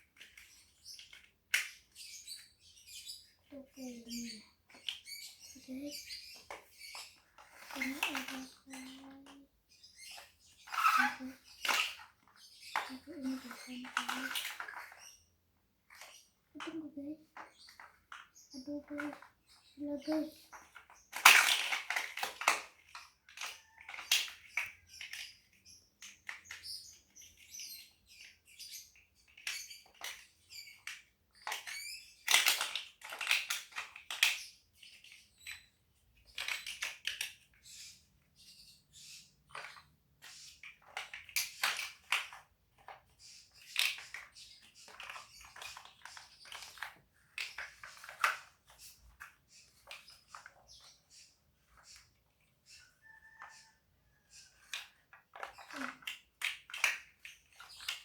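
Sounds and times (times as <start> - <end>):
plastic bricks clicking: 7.2 - 9.4, 20.0 - 27.5, 29.3 - 35.6, 39.4 - 51.8, 54.5 - 58.0.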